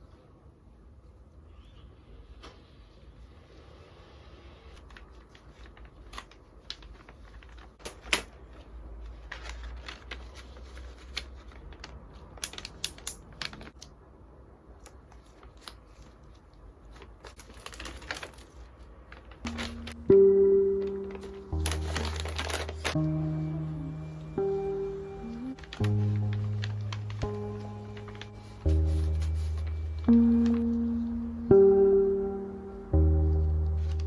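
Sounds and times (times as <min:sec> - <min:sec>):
low steady hum: 0:19.2 - 0:34.0.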